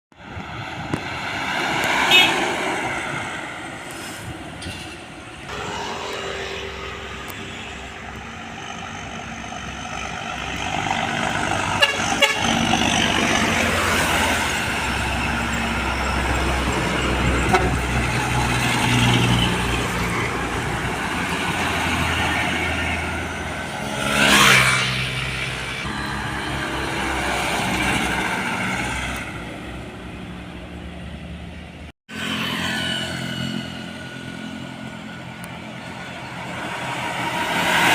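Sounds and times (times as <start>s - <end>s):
heavy trucks passing: 0.1s - 37.9s
truck horns: 1.9s - 3.1s, 5.5s - 20.7s.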